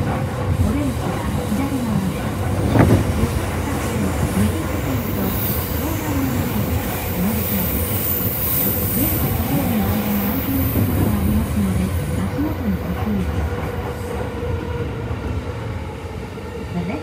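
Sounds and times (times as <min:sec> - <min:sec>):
passing electric train: 0:00.0 - 0:17.0
train wheels rumbling on rail: 0:00.0 - 0:17.0.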